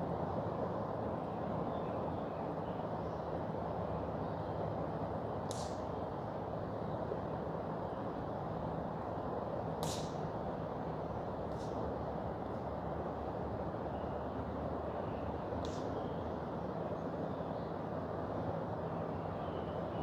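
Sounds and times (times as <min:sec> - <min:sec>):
sharp crack: 0:09.8 - 0:10.2.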